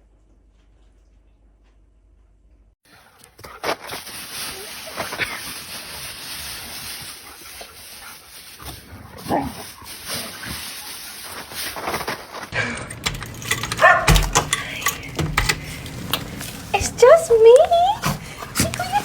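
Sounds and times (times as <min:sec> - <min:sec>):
dog whining and barking: 0:13.7 - 0:14.4.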